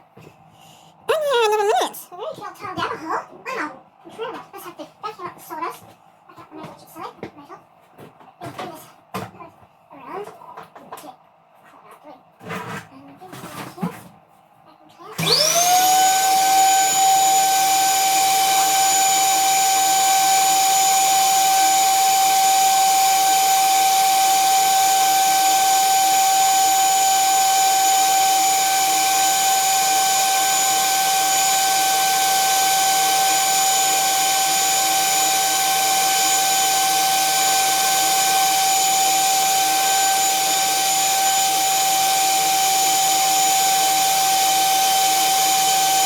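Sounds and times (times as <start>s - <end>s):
electric drill whine: 15.2s - 46.0s.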